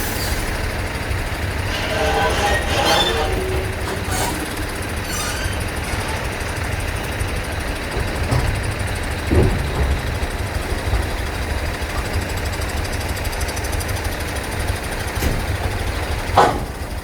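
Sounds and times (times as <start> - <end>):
heavy engine rumbling: 0.0 - 17.0
engine knock: 6.4 - 17.0.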